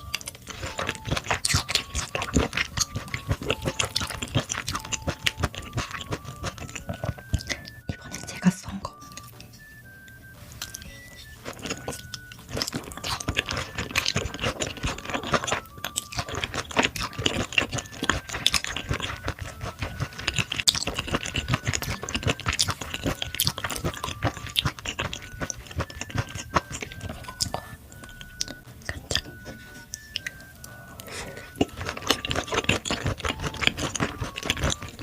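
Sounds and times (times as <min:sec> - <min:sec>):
wet chewing clicks and smacks: 0:00.0 - 0:35.0.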